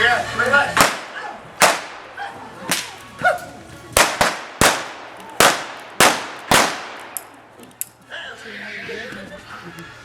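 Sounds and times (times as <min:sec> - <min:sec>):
gunshots firing blanks: 0:00.8 - 0:02.1, 0:04.0 - 0:07.2.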